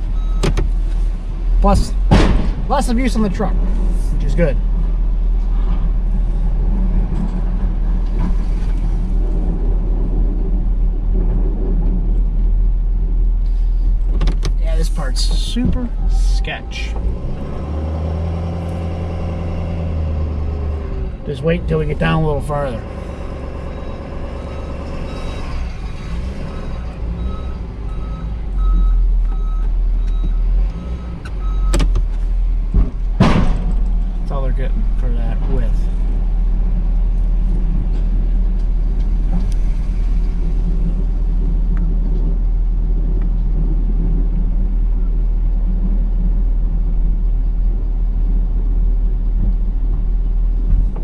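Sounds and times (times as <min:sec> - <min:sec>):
road and drivetrain noise: 0:00.0 - 0:51.0
truck engine rumbling: 0:00.0 - 0:51.0
backup alarm beeping: 0:00.2 - 0:00.6, 0:22.9 - 0:31.9.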